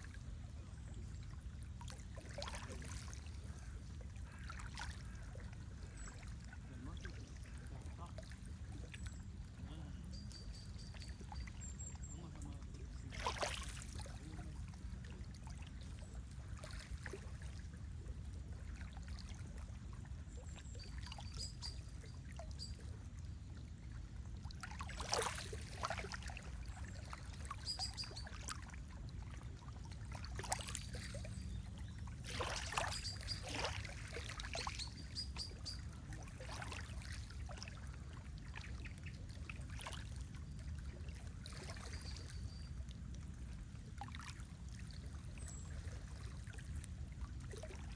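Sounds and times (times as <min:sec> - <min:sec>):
water lapping against shore: 0:00.0 - 0:47.9
faint bird chirps: 0:08.8 - 0:12.6, 0:20.4 - 0:22.9, 0:27.0 - 0:28.7, 0:30.9 - 0:36.8, 0:41.6 - 0:42.8.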